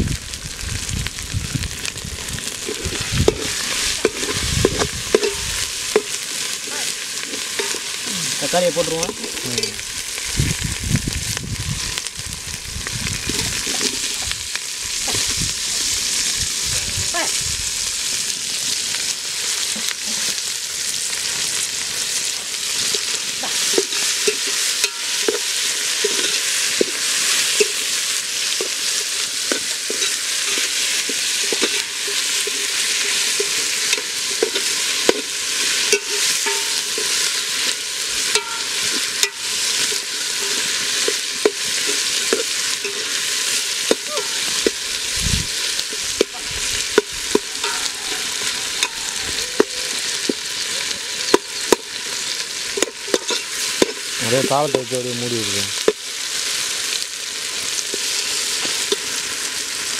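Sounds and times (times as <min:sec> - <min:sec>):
vegetables sizzling in oil: 0:00.0 - 0:59.9
ladle clinking and scraping pot: 0:02.6 - 0:06.5, 0:07.2 - 0:08.0, 0:23.6 - 0:44.8, 0:52.8 - 0:54.2.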